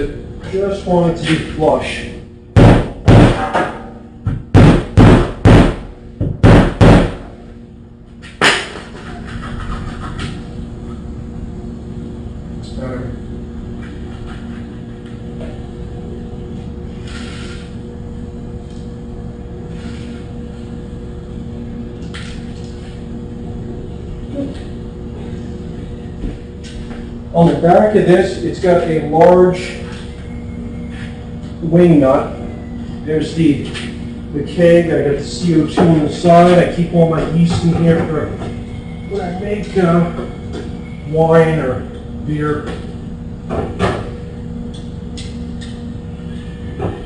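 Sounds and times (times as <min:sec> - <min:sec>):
machine hum with low rumble: 0:00.0 - 0:47.0.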